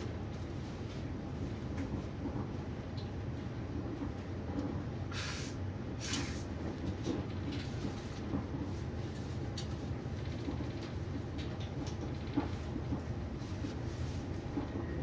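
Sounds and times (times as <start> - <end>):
train running rumble: 0.0 - 15.0
short hissing: 5.1 - 6.4.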